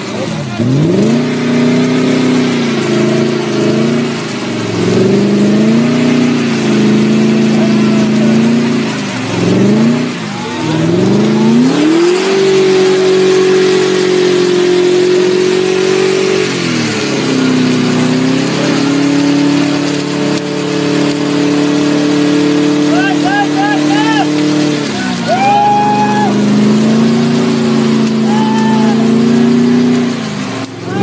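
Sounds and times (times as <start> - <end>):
car engine revving hard: 0.0 - 31.0.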